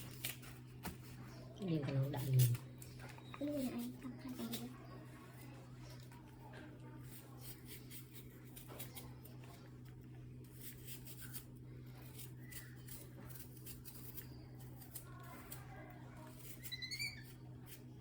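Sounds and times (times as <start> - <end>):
monkey squeaking: 16.6 - 17.4.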